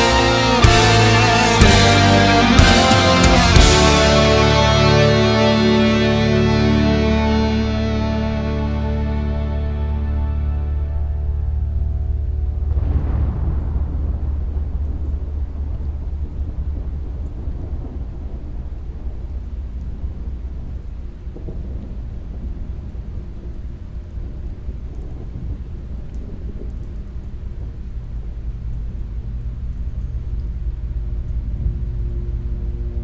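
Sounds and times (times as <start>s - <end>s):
steady rain: 0.0s - 33.0s
low rumble of thunder: 11.0s - 33.0s.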